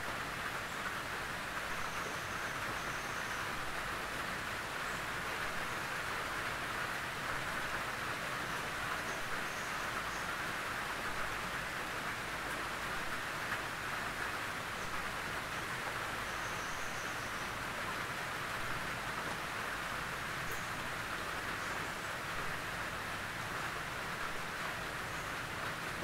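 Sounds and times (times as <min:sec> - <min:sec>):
rain on a tin roof: 0:00.0 - 0:26.0.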